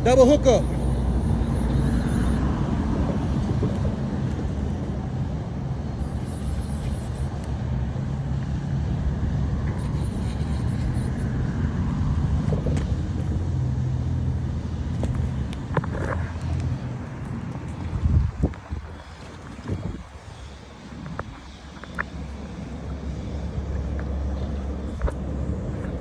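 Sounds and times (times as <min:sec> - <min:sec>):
passing vehicle engines droning: 0:00.0 - 0:06.2, 0:07.2 - 0:19.0
road traffic rumble: 0:00.0 - 0:26.0.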